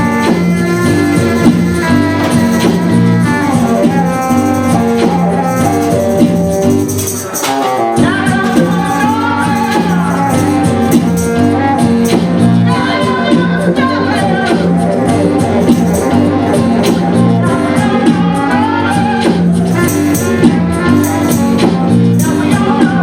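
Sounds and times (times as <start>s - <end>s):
live band with guitar and percussion: 0.0s - 23.0s
singing voice: 7.1s - 23.0s.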